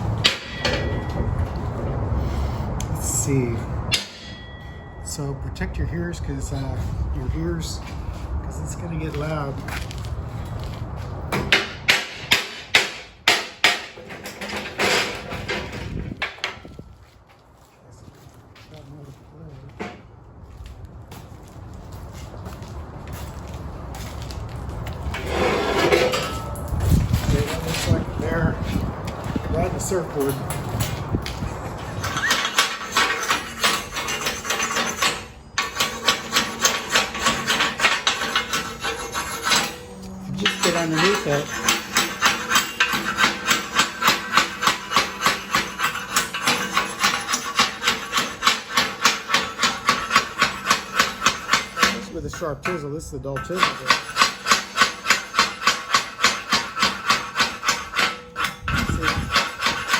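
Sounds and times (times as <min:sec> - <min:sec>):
hammer striking chisel on steel: 0:00.2 - 0:01.3, 0:03.9 - 0:05.1, 0:11.3 - 0:15.2, 0:32.0 - 0:59.9.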